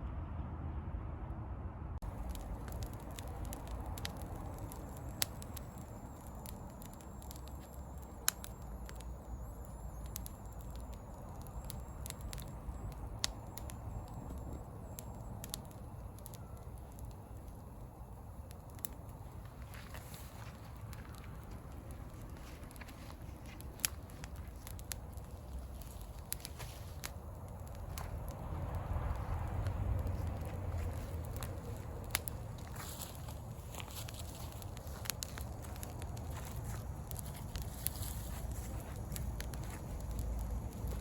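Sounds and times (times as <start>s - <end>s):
low rumble: 0.0s - 15.1s, 27.4s - 41.0s
fire popping: 2.0s - 41.0s
wood bonfire crackling: 2.0s - 41.0s.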